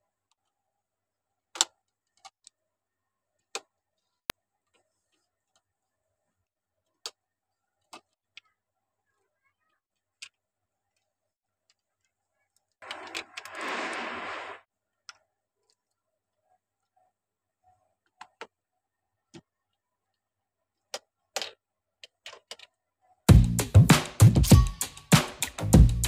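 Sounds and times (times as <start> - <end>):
rustling noise: 12.8 - 14.7
plastic bricks clicking together: 20.9 - 22.8.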